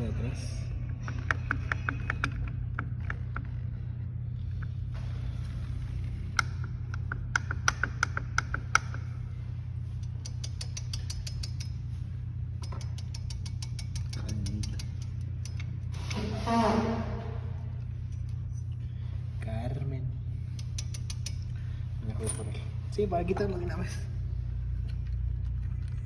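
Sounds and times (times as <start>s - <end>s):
steady low hum: 0.0s - 26.0s
metal clicks and tool taps: 6.4s - 9.2s, 10.0s - 11.8s, 12.6s - 15.8s, 20.5s - 21.6s.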